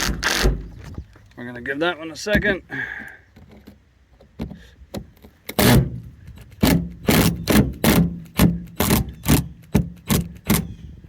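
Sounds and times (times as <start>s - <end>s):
hand tool scraping screws: 4.4s - 10.7s.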